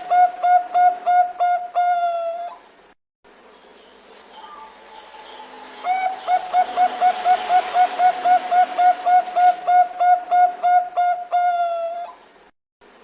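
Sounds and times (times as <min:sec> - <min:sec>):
dove cooing: 0:00.0 - 0:02.7, 0:05.8 - 0:12.2.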